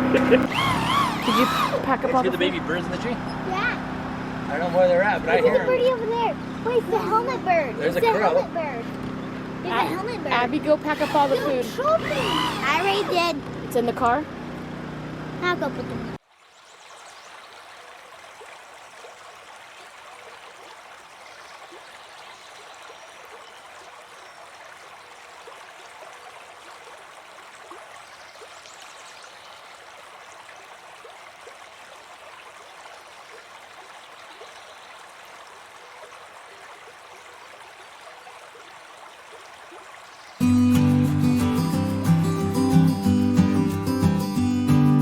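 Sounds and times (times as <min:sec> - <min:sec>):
stream water rushing: 0:00.0 - 0:14.8, 0:15.4 - 0:45.0.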